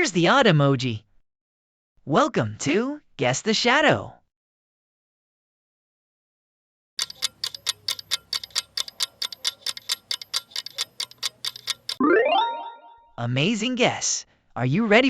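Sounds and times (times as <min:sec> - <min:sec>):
countdown timer ticking rapidly: 0:07.0 - 0:12.8.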